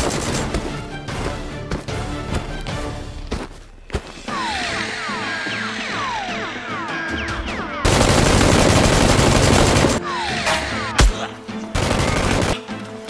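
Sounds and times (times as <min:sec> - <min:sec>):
background music: 0:00.0 - 0:13.0
automatic gunfire: 0:07.9 - 0:10.0, 0:11.8 - 0:12.6.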